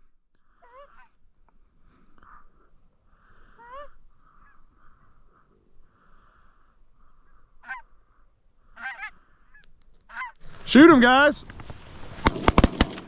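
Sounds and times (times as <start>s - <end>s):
goose honking: 0.6s - 1.2s, 7.6s - 8.0s, 8.8s - 10.6s.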